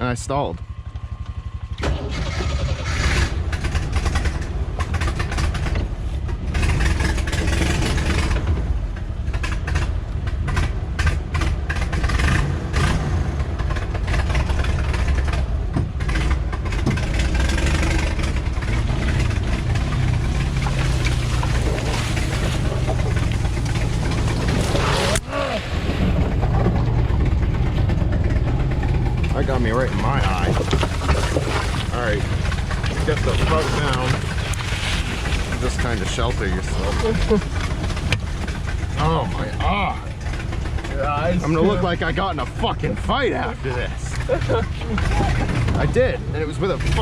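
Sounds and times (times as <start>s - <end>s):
engine running and revving: 0.0s - 47.0s
branches scraping and snapping: 18.9s - 25.3s, 29.6s - 38.9s.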